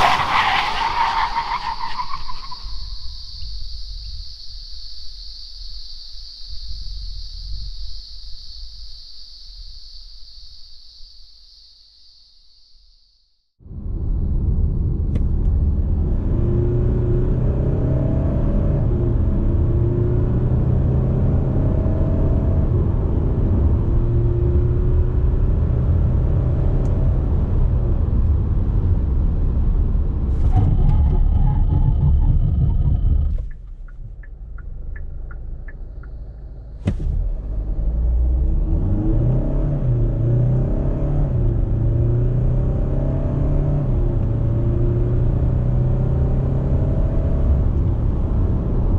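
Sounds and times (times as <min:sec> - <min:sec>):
diesel engine drone: 0:13.7 - 0:48.9.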